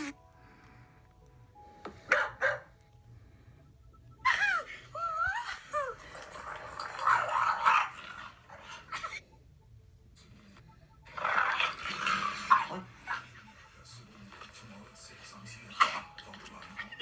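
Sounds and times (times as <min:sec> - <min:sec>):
dog coughing: 0:02.1 - 0:02.7
dog crying: 0:04.2 - 0:06.2, 0:06.8 - 0:09.2.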